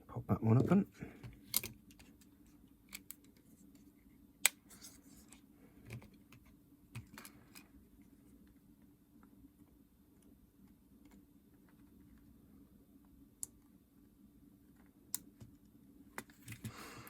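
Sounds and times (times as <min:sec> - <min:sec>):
plastic parts clicking: 0:01.2 - 0:02.3, 0:05.8 - 0:07.7.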